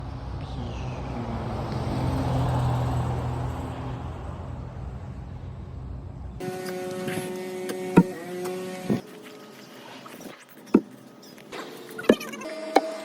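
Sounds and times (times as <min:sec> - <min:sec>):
vehicle passing by: 0:00.0 - 0:08.0.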